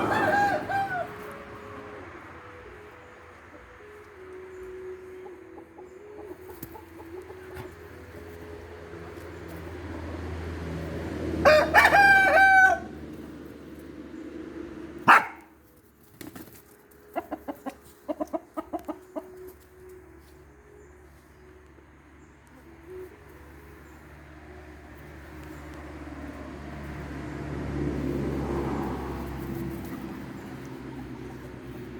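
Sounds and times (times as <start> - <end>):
rooster crowing: 0.0 - 1.4, 11.4 - 13.0
chicken clucking: 3.5 - 10.1, 16.9 - 20.4.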